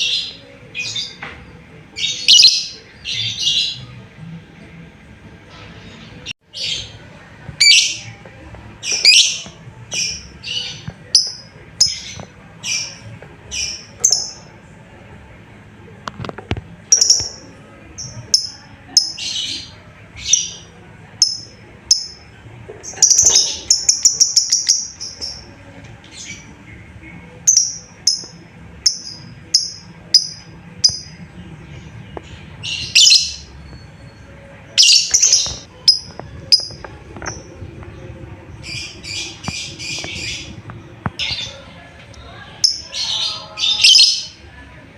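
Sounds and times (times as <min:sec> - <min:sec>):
lovebird chirping: 0:22.9 - 0:25.5, 0:27.4 - 0:31.1.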